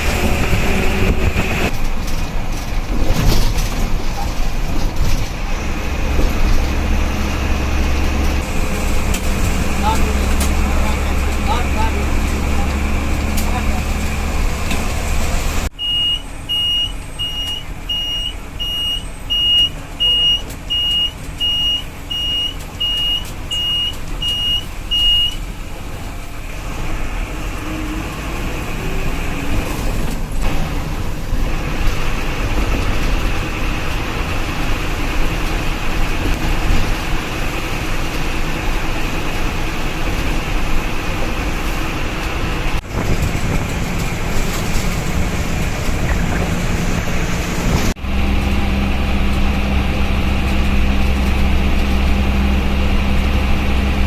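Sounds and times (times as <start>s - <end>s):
bus engine: 0.0s - 54.0s
road noise: 0.0s - 54.0s
high reversing beeps: 15.8s - 25.4s.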